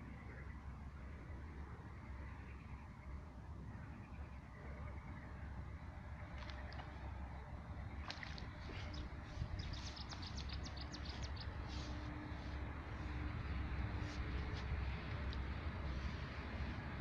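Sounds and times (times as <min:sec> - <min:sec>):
steady low rumble: 0:00.0 - 0:17.0
bird chirps: 0:08.7 - 0:12.0
songbird trilling: 0:08.8 - 0:11.9.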